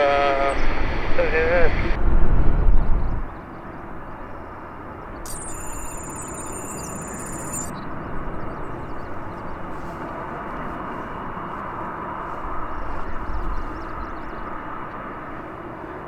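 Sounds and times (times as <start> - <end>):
jet airliner engine rumble: 7.9 - 16.0.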